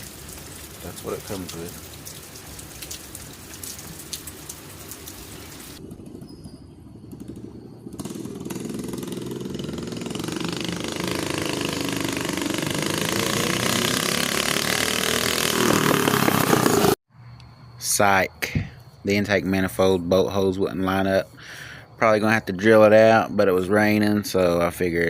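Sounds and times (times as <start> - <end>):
rain pattering: 0.0 - 5.9
minibike engine revving: 7.1 - 17.0.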